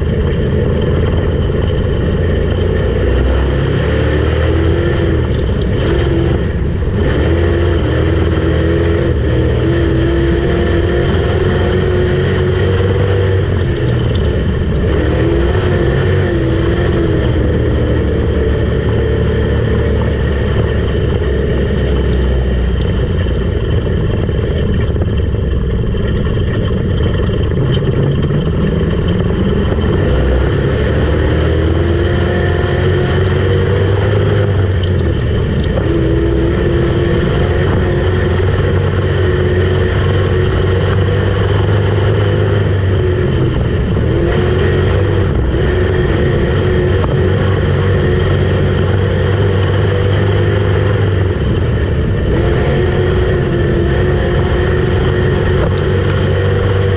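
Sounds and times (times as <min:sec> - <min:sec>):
race car engine revving: 0:00.0 - 0:56.9.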